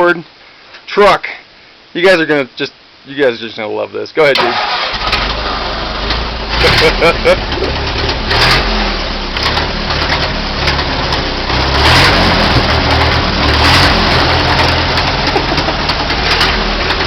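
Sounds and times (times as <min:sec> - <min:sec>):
truck engine running: 0:04.5 - 0:17.0.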